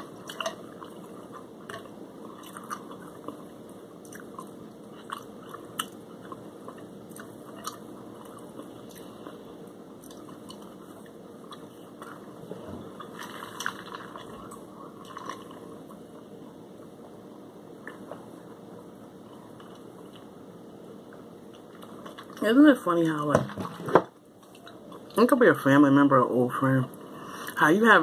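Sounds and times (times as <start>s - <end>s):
person chewing fried food: 0.0s - 16.3s, 17.8s - 20.4s.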